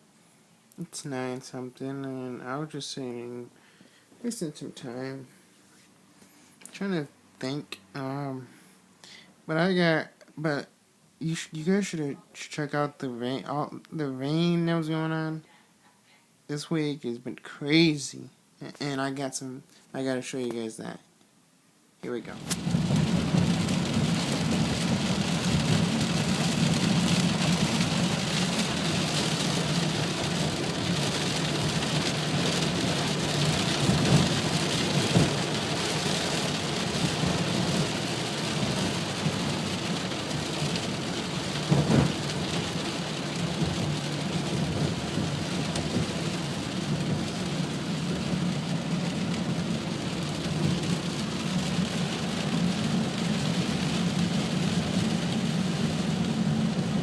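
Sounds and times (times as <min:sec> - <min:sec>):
heavy rain pouring: 0:22.2 - 0:57.0.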